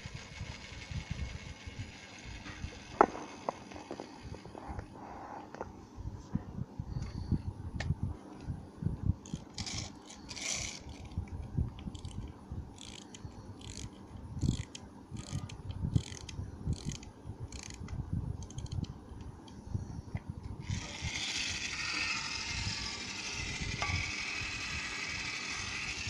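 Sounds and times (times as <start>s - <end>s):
plastic toy clicking and rattling: 9.3s - 11.1s, 12.8s - 17.8s, 18.4s - 18.8s, 20.6s - 26.0s.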